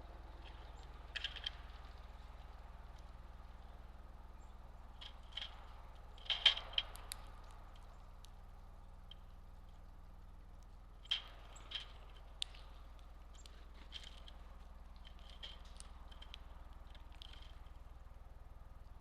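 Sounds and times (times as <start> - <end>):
steady low hum: 0.0 - 19.0
bird chips and taps: 0.3 - 3.2, 10.6 - 18.0.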